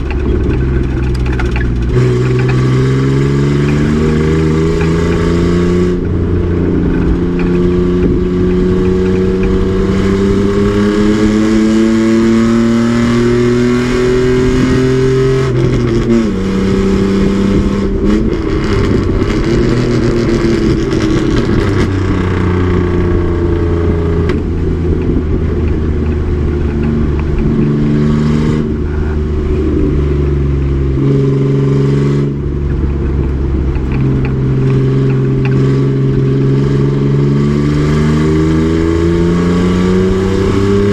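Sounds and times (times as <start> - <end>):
truck engine revving: 0.0 - 40.9.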